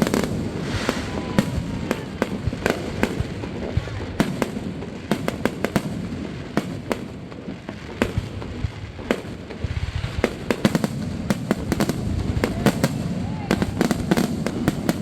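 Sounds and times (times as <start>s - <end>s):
fireworks cracking and popping: 0.0s - 15.0s.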